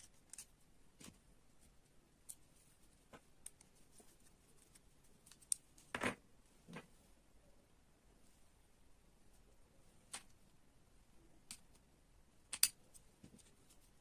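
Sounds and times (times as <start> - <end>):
plastic parts clicking and tapping: 12.5 - 13.4.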